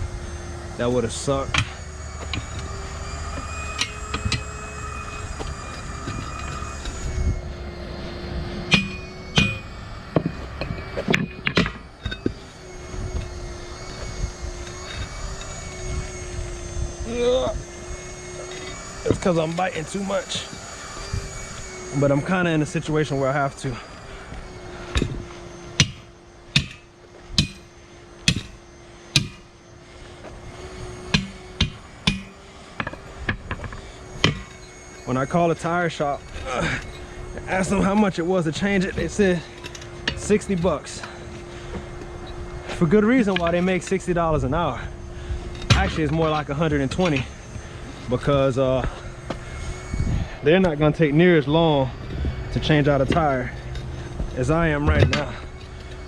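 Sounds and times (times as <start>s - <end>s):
low hum: 0.0s - 56.0s
tire irons scraping metal rim: 0.0s - 56.0s
hammer striking metal tire rim: 8.7s - 9.6s, 25.8s - 26.0s, 26.6s - 26.8s, 27.4s - 27.6s, 28.3s - 28.5s, 29.2s - 29.4s, 31.2s - 33.6s
sharp metal clanks: 8.7s - 12.4s.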